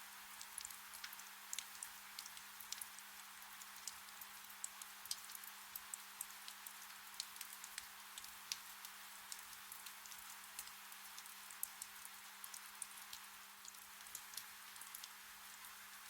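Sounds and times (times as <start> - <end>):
gentle rain falling: 0.0 - 16.0
raindrops ticking: 0.4 - 8.7, 9.3 - 15.1.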